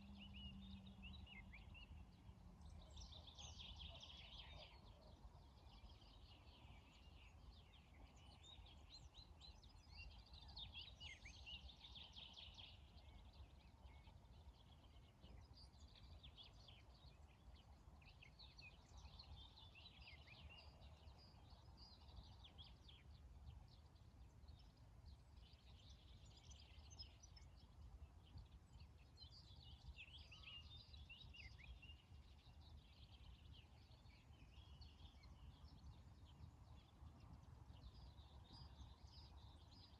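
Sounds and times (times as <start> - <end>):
faint bird chirps: 0.0 - 23.6.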